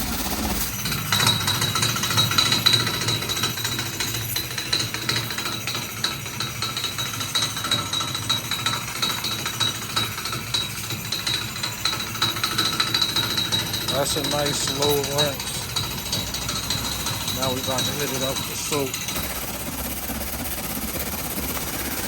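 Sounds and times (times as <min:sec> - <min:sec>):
pressure washer spraying water: 0:10.4 - 0:22.0
thin high whine: 0:12.0 - 0:22.0.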